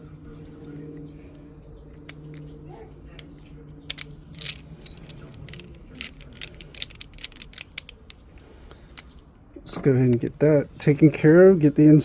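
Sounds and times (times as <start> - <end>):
low steady hum: 0.0 - 12.0
metal tools clicking and tapping: 1.8 - 8.2.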